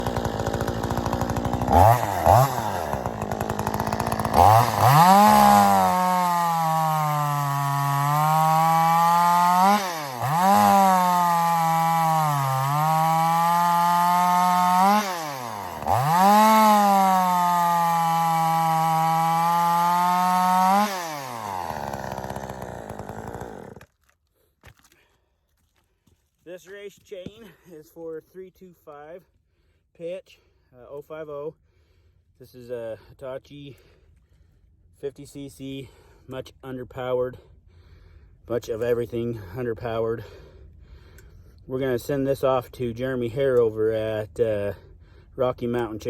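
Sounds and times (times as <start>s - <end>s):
chainsaw cutting wood: 0.0s - 25.0s.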